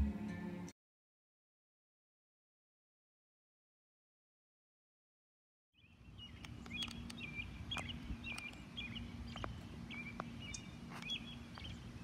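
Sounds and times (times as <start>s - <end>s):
small bird chirping: 5.8s - 12.0s
sharp clicks: 6.4s - 7.2s, 7.8s - 8.6s.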